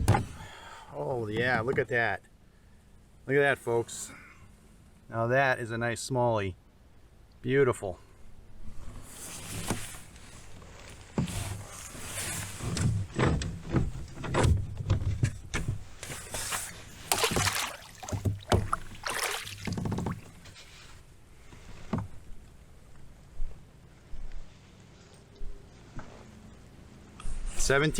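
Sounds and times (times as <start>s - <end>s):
knocks and scrapes aboard kayak: 0.0s - 0.6s, 8.7s - 22.2s.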